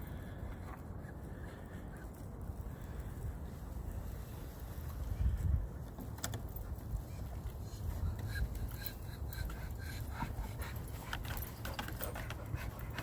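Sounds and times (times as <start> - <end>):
wind buffeting microphone: 0.0 - 13.0
dog panting: 7.9 - 13.0.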